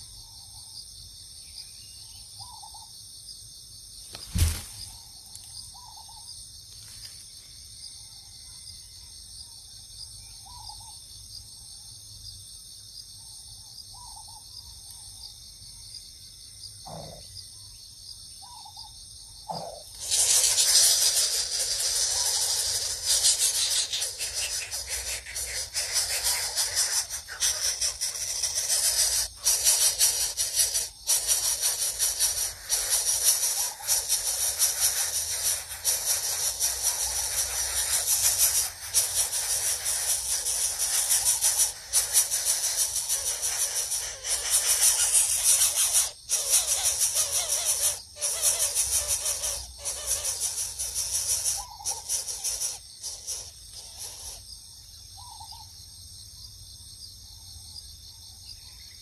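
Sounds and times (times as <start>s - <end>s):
crickets chirping: 0.0s - 59.0s
loud rattling hiss: 4.2s - 4.9s, 19.9s - 54.4s.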